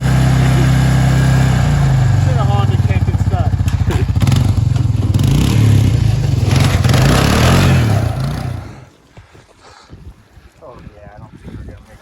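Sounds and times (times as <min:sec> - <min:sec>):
loud rush of noise: 0:00.0 - 0:08.9
quad engine revving hard: 0:00.0 - 0:08.9.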